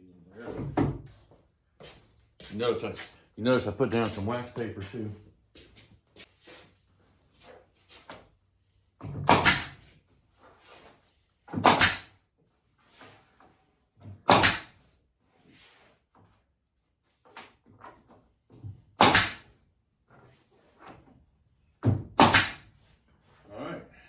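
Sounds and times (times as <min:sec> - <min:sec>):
loud knocks on wood: 0:09.0 - 0:09.8, 0:11.6 - 0:12.1, 0:14.3 - 0:14.7, 0:19.0 - 0:19.4, 0:21.8 - 0:22.6.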